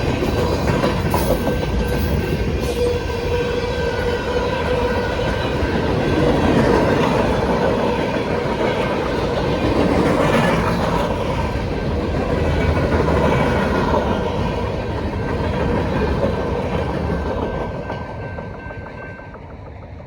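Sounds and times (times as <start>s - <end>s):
crossing bell ringing: 0.0s - 6.6s, 17.2s - 19.6s
train wheels rumbling on rails: 0.0s - 20.0s.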